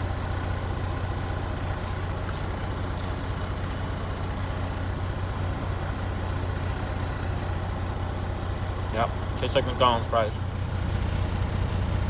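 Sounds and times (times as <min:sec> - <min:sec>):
truck diesel engine idling: 0:00.0 - 0:12.0.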